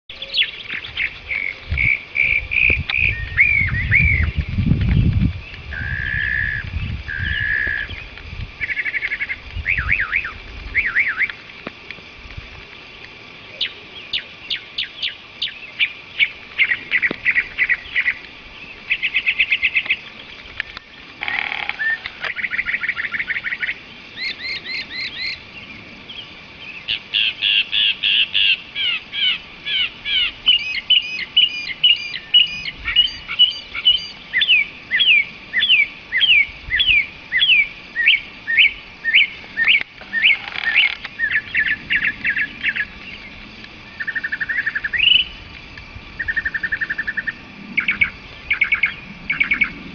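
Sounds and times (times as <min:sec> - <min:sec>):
songbird singing: 0:00.1 - 0:49.9.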